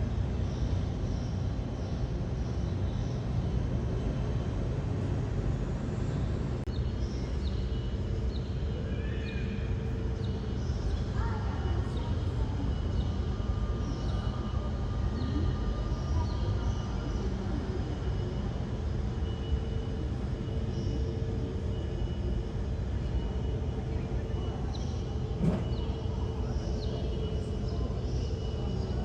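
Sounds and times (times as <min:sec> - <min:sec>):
jet engines rumbling: 0:21.0 - 0:28.0.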